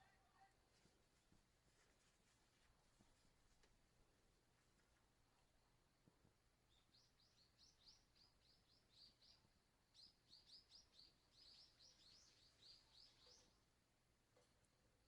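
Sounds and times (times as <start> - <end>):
bird chirping faintly: 6.6 - 13.8.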